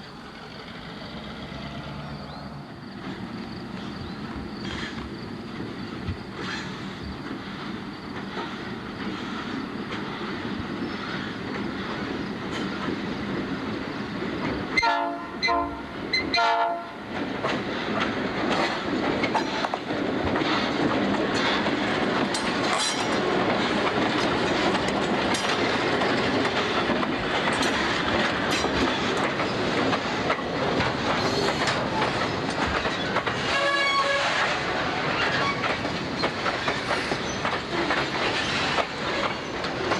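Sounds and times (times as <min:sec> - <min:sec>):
diesel locomotives rumbling: 0:00.0 - 0:39.9
wheels clacking over rail joints: 0:00.0 - 0:39.9
train horn blasts: 0:14.8 - 0:17.0, 0:33.4 - 0:34.6.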